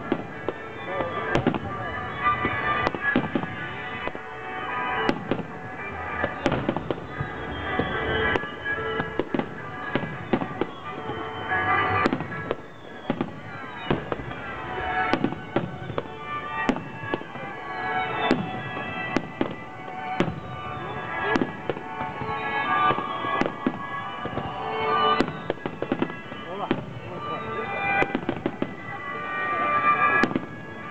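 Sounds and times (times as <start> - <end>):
fireworks bangs: 0.0 - 30.9
music: 0.0 - 30.9.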